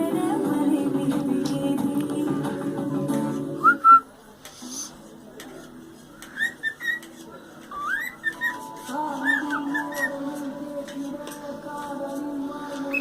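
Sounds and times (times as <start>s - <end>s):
cockatiel whistling: 6.4s - 7.1s, 7.7s - 8.6s.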